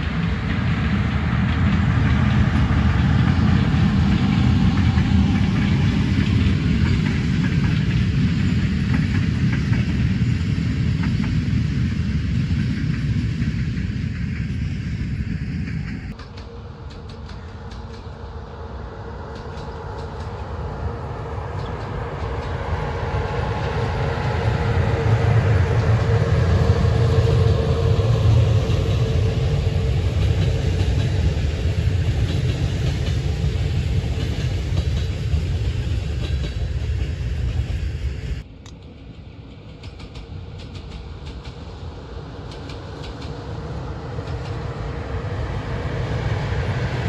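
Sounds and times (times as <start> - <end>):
train rumbling past: 0.0 - 47.0.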